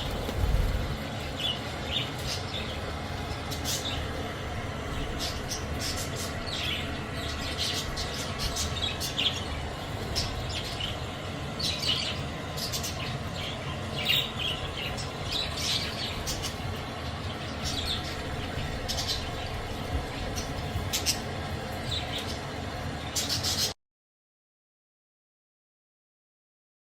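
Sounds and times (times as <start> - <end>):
budgerigars chirping: 5.0 - 11.0, 11.6 - 21.2.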